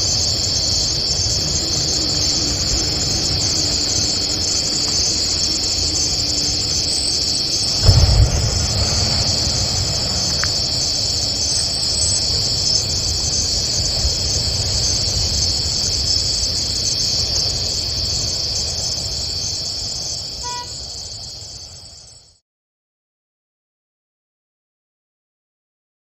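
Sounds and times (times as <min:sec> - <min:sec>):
high-pitched insect chorus: 0:00.0 - 0:22.4
low rumble: 0:07.6 - 0:18.4.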